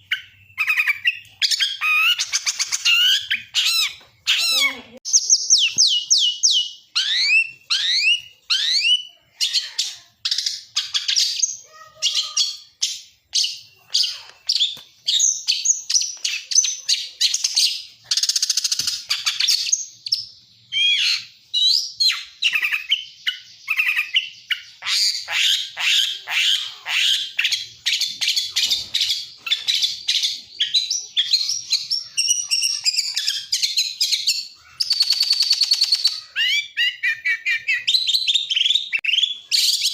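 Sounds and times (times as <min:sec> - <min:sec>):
songbird singing fast varied song: 0:00.1 - 0:09.4.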